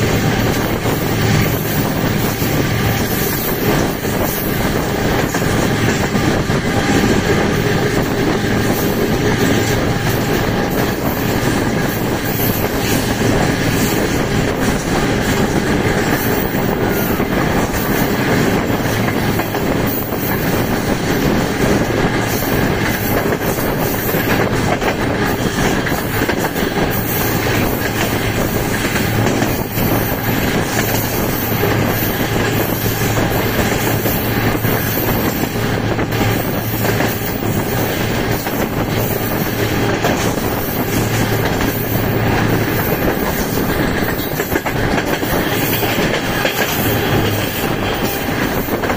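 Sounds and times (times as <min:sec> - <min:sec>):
rail joint clicks: 0:00.0 - 0:48.9
train wheels rumbling on rails: 0:00.0 - 0:48.9.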